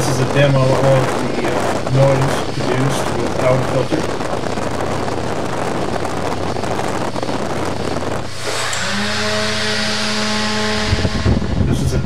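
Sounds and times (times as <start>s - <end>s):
low engine drone: 0.0s - 12.0s
wind buffeting microphone: 0.0s - 12.0s.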